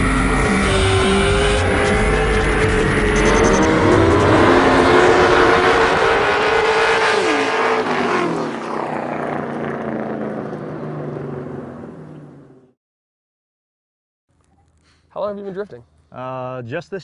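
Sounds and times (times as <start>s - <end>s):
racing engine revving: 0.0s - 12.1s.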